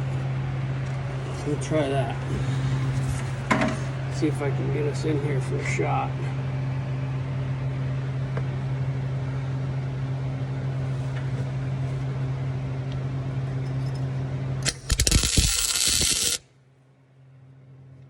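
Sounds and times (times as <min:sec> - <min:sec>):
cooling fan: 0:00.0 - 0:18.0
welding machine humming: 0:14.6 - 0:16.5.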